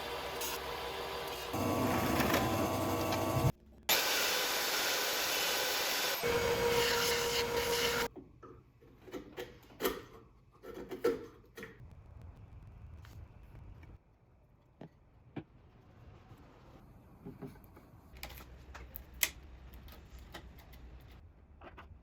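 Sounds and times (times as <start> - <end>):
metal rasping and grinding: 6.2 - 8.1.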